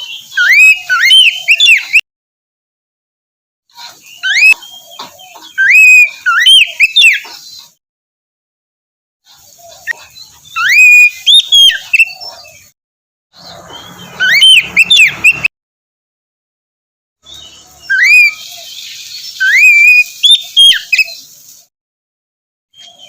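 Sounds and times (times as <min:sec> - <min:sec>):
bird singing whistled phrases: 0:00.0 - 0:02.0, 0:04.1 - 0:07.2, 0:09.8 - 0:12.7, 0:13.4 - 0:15.5, 0:17.2 - 0:21.2.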